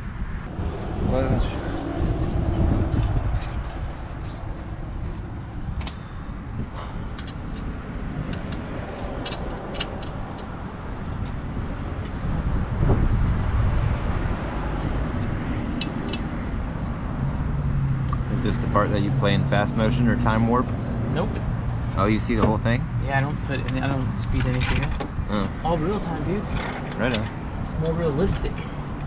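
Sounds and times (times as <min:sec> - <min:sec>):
metallic clicks of tools and parts: 0:05.8 - 0:06.1, 0:08.3 - 0:10.5.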